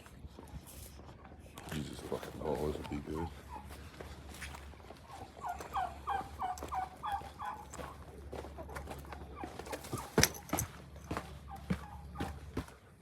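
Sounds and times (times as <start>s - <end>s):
turkey calling: 1.2s - 12.7s.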